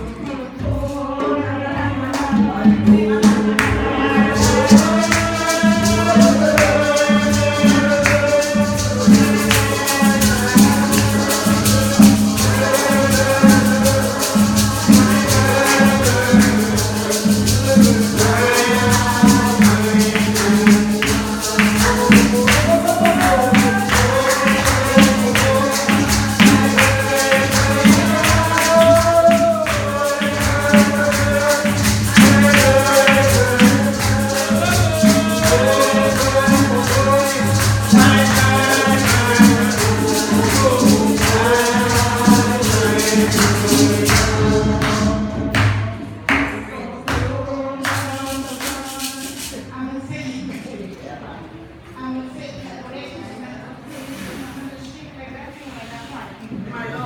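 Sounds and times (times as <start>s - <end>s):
tambourine beat: 3.2s - 45.8s
sung melody: 3.8s - 45.5s.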